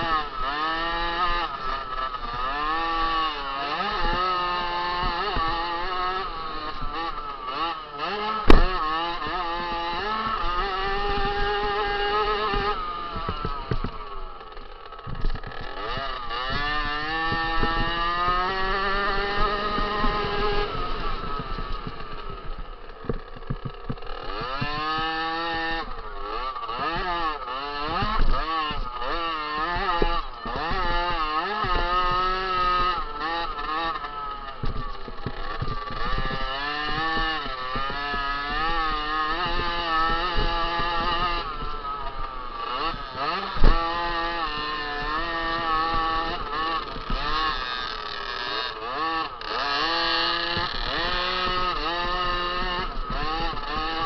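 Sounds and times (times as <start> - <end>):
motocross bike engine revving: 0.0 - 54.0
sharp knock: 8.5 - 8.7.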